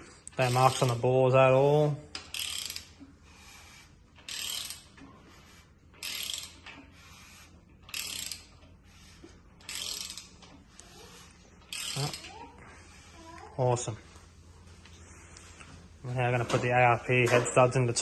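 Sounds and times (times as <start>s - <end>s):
ratchet wrench clicking: 2.1s - 5.0s, 6.0s - 8.7s, 9.6s - 12.4s.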